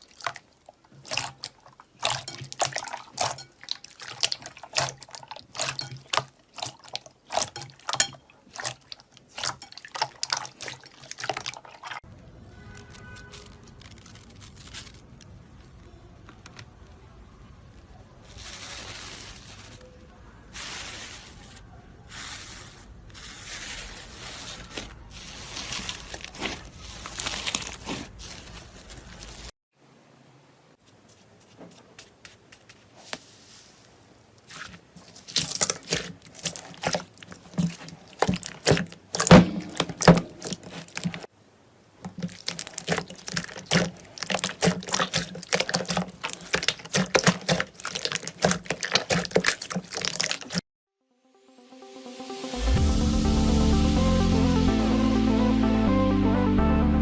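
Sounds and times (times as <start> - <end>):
slime squishing and stretching: 0.0 - 17.0, 18.2 - 29.5, 34.4 - 41.3, 42.0 - 50.6
slime crackling and popping: 12.5 - 15.7, 34.5 - 41.3, 42.1 - 50.6.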